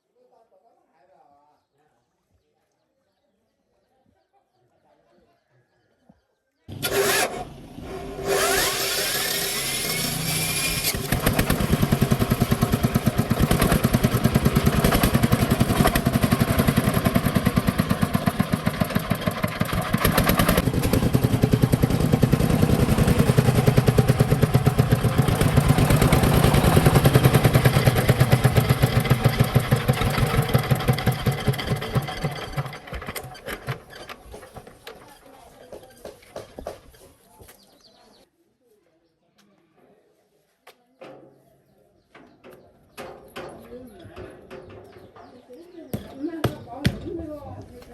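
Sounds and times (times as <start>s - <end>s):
engine cranking whine: 6.7s - 35.0s
engine running: 6.7s - 35.0s.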